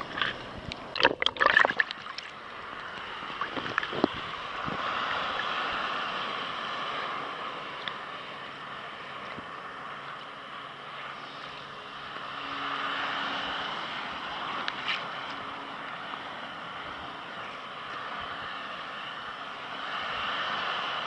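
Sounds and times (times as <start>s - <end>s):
water splashing against kayak: 0.0s - 10.3s
waves washing around rocks: 0.0s - 21.0s.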